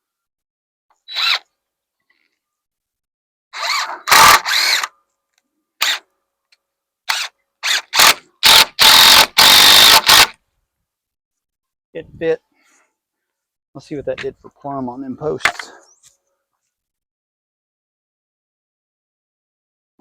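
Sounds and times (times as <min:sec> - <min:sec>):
power drill driving screws into wood: 0:01.0 - 0:01.5, 0:03.6 - 0:04.9, 0:05.8 - 0:06.1, 0:07.1 - 0:10.4.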